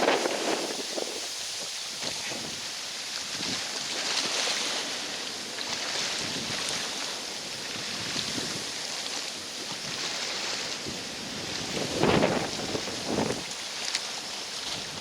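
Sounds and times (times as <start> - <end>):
wind on microphone: 0.0 - 3.9, 5.9 - 6.9, 7.5 - 8.8, 9.7 - 13.6
lake water washing against shore: 0.0 - 15.0.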